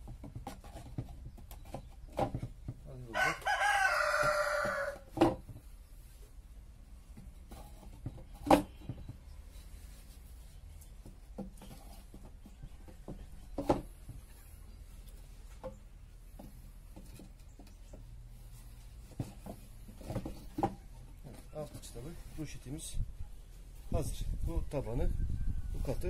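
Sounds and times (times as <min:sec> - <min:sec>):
wood knocking on wood: 0:00.0 - 0:02.9, 0:03.6 - 0:05.7, 0:11.0 - 0:14.3.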